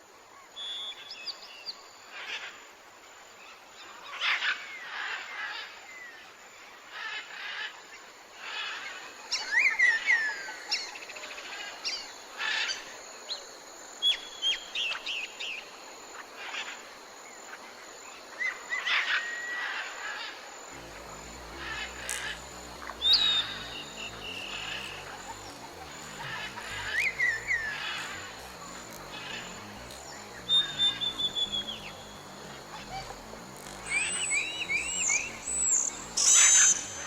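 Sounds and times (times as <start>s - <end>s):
background hiss: 20.1s - 37.0s
small birds chirping: 20.7s - 37.0s.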